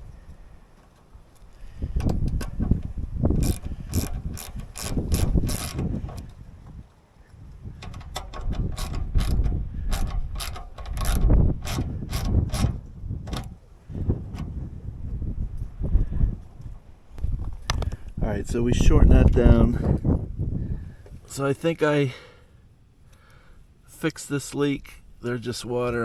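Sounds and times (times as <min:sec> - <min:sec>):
low knocking and handling noise: 0:00.0 - 0:06.9, 0:07.7 - 0:15.8
ratcheting clicks: 0:01.4 - 0:06.4, 0:07.8 - 0:13.5.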